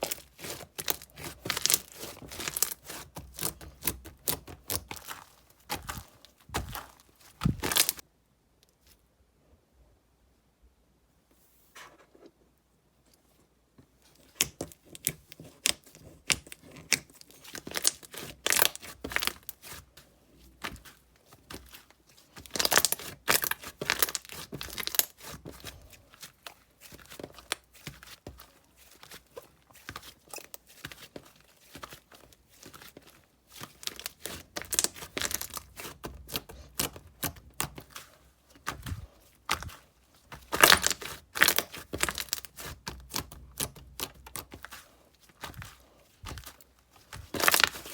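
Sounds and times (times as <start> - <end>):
slime crackling and popping: 0.0 - 8.0, 14.3 - 19.8, 22.4 - 28.2, 33.5 - 38.0, 40.4 - 44.7, 46.3 - 47.9.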